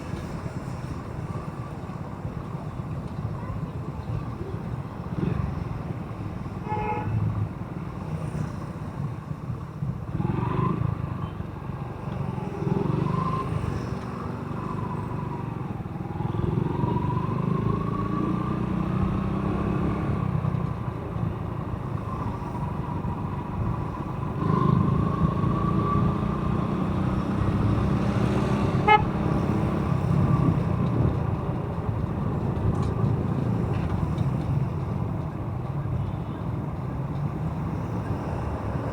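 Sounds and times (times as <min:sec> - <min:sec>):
road and wind noise: 0:00.0 - 0:38.9
motorcycle engine whine: 0:10.2 - 0:35.0
horn toots: 0:28.6 - 0:29.4.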